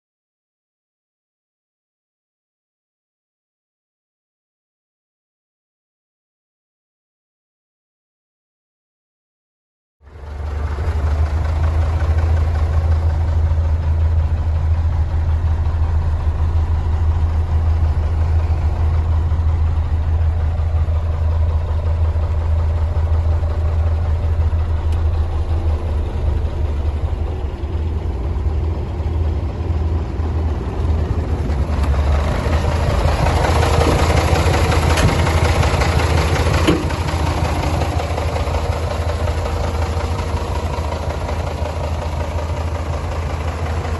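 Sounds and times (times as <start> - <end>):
truck diesel engine idling: 10.0 - 43.9.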